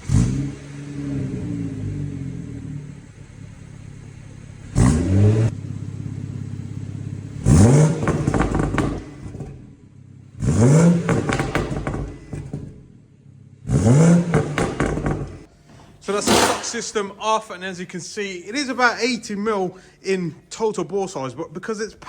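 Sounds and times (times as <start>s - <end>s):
car engine idling and revving: 0.0s - 16.5s
exhaust crackles: 0.0s - 22.0s.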